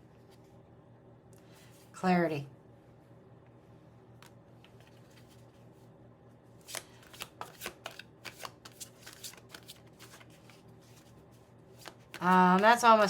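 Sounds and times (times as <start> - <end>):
cards being shuffled: 4.2 - 5.6, 6.6 - 13.0.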